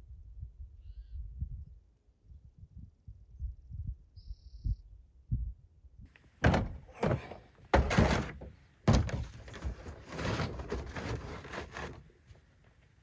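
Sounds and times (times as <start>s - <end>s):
heavy thuds: 6.4s - 12.0s
sliding rubbing scrape: 6.4s - 12.1s.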